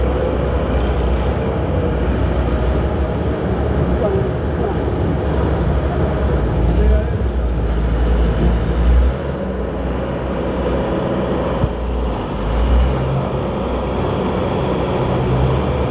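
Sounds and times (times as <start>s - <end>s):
heavy engine rumbling: 0.0s - 15.9s.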